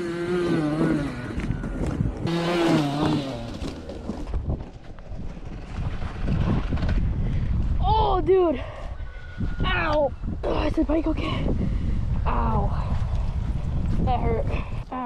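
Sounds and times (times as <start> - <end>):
dirt bike engine revving: 0.0 - 4.7
wind rumble on microphone: 0.2 - 15.0.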